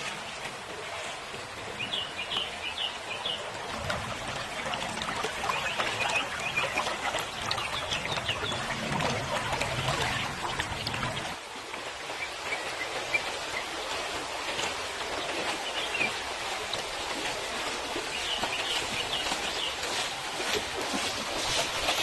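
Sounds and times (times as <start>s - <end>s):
river water rushing: 0.0s - 22.0s
birds chirping: 1.7s - 11.4s.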